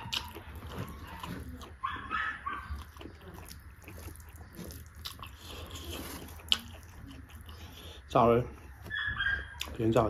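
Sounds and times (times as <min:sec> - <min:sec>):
person chewing with mouth smacks: 0:00.0 - 0:10.0.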